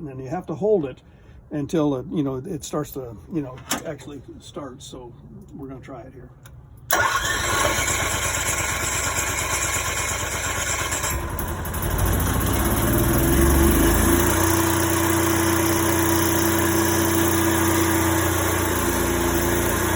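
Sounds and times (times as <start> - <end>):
generator engine running: 6.9 - 19.9
generator starter cranking: 6.9 - 19.9.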